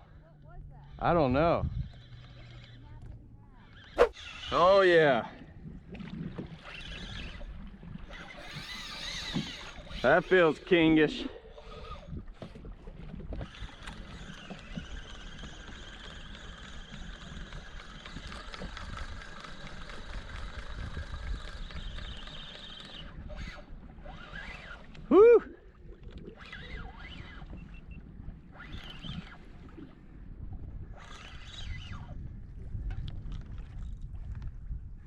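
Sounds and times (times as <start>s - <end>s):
water and wind wash: 0.0s - 35.0s
fishing reel drag buzzing: 0.8s - 2.9s, 3.6s - 5.3s, 6.6s - 12.5s, 13.4s - 25.1s, 26.3s - 29.7s, 30.9s - 32.3s
person shouting woo: 25.1s - 25.6s.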